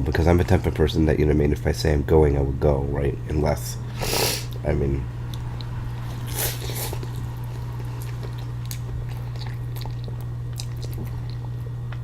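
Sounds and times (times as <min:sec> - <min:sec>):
steady low hum: 0:00.0 - 0:12.0
wet chewing: 0:05.3 - 0:12.0.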